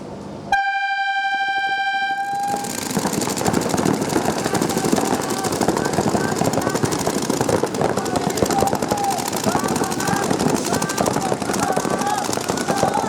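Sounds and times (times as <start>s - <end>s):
horn-like signal tone: 0.5s - 2.6s
people shouting: 2.2s - 13.0s
rapid clattering: 2.2s - 13.0s.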